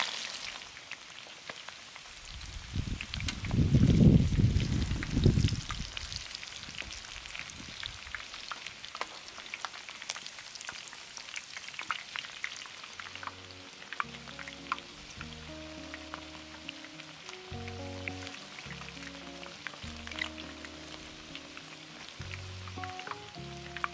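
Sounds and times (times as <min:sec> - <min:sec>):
chicken frying in hot oil: 0:00.0 - 0:23.9
low music notes: 0:13.0 - 0:23.9.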